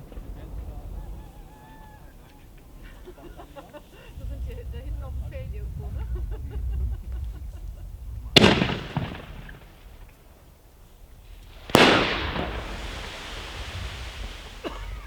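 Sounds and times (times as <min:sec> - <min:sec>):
rolling echo: 0:00.0 - 0:15.0
firework shells bursting: 0:08.1 - 0:15.0.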